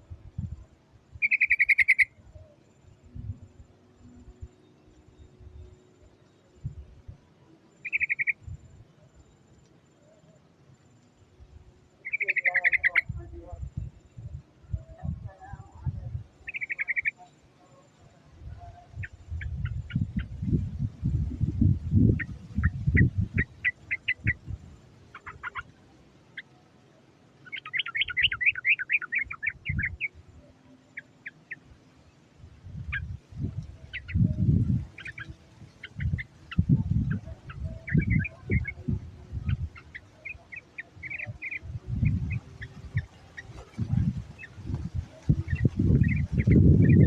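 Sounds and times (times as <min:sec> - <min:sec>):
bird chirping calls: 0:01.1 - 0:03.0, 0:07.7 - 0:09.3, 0:12.0 - 0:13.9, 0:14.6 - 0:32.2, 0:32.8 - 0:47.0.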